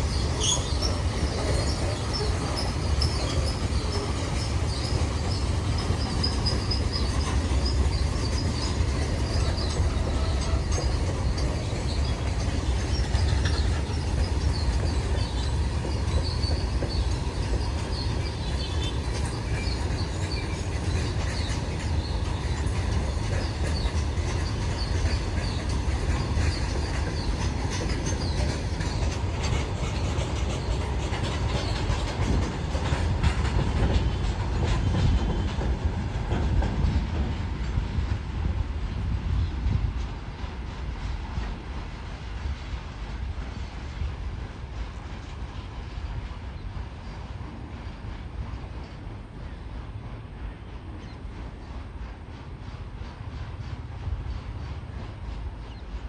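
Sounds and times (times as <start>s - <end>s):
high wheel squeals: 0.0s - 33.4s
train wheels rumbling on rails: 0.0s - 56.0s.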